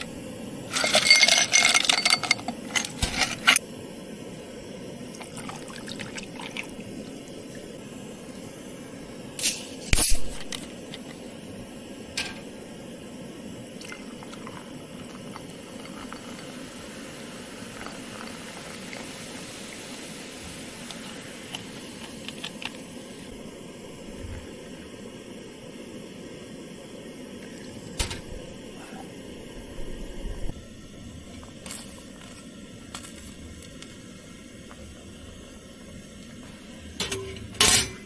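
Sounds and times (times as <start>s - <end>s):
liquid pouring: 5.1s - 7.7s, 13.8s - 21.8s.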